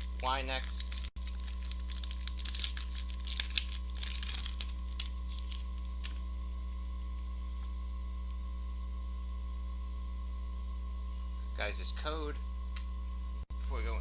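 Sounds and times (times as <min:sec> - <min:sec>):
foil pack crinkling and tearing: 0:00.0 - 0:06.2
steady electrical hum: 0:00.0 - 0:14.0.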